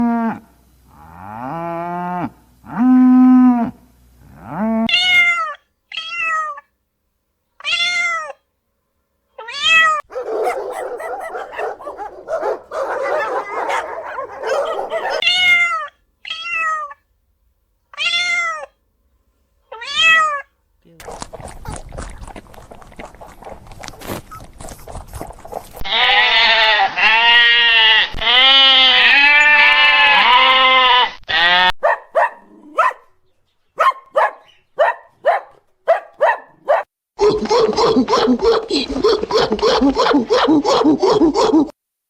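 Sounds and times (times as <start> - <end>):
cat meowing: 10.1 - 15.3.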